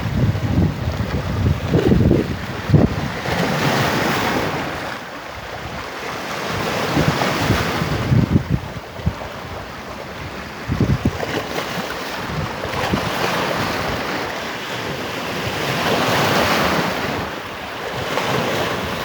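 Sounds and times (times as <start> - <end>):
waves breaking on shore: 0.0 - 19.0
wind buffeting microphone: 0.0 - 19.0.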